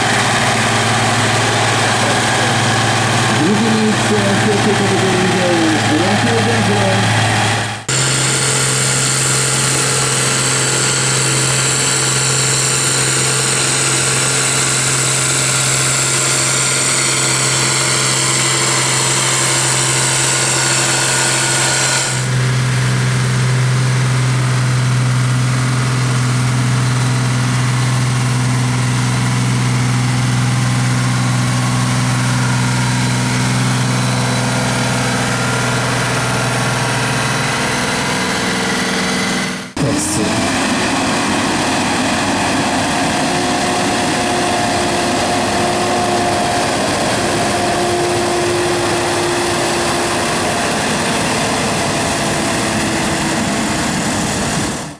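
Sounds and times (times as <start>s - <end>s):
tractor engine running loud: 0.0s - 54.9s
high whine falling in pitch: 27.5s - 53.8s.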